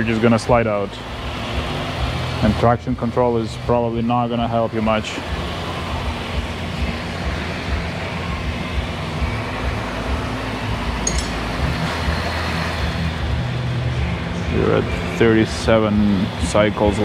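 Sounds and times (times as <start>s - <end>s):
car engine idling: 0.0s - 17.0s
hydraulic pump: 0.0s - 17.0s.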